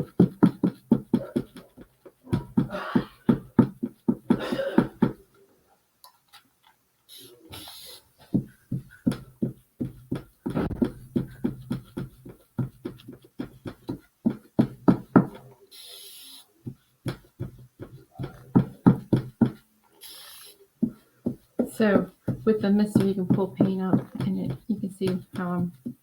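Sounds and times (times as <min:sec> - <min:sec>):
spray mister hissing: 0:07.1 - 0:08.4, 0:15.5 - 0:16.8, 0:20.0 - 0:23.4
paint brush dabbing taps: 0:07.5 - 0:26.0.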